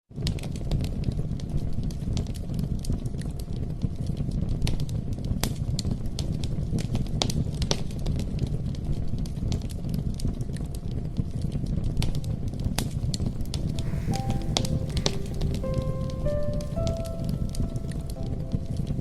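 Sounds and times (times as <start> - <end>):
campfire crackling: 12.2 - 19.0.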